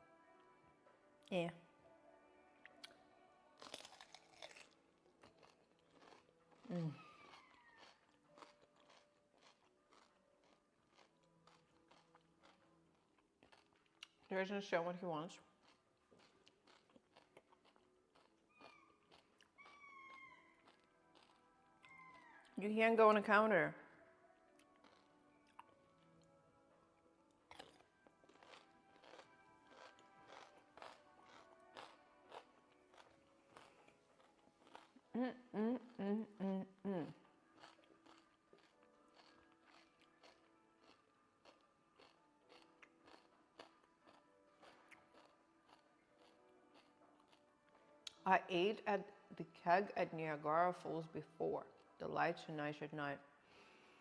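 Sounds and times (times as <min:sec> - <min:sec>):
faint background music: 0:00.0 - 0:54.0
faint chewing crunches: 0:03.6 - 0:14.4, 0:15.5 - 0:22.6, 0:24.5 - 0:26.4, 0:27.4 - 0:35.1, 0:37.0 - 0:48.2.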